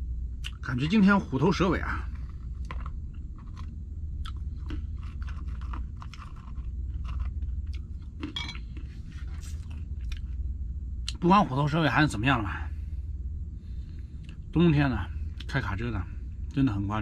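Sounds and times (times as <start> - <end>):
steady low hum: 0.0 - 17.0
person chewing crunchy food: 2.0 - 10.4.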